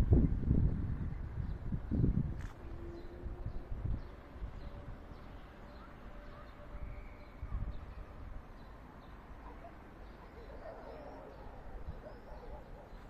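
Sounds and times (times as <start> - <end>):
wind rumbling on microphone: 0.0 - 8.5
small birds chirping: 2.4 - 13.0.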